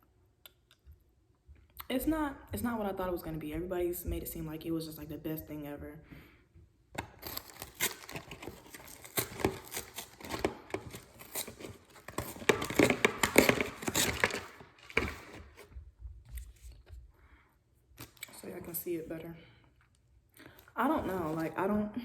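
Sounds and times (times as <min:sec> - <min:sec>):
paper packaging crinkling: 0:07.0 - 0:15.7, 0:20.8 - 0:21.7.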